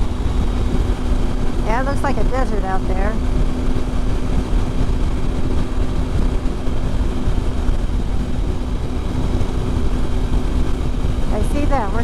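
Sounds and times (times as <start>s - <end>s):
motorcycle engine running: 0.0s - 12.0s
wind rushing over microphone: 0.0s - 12.0s.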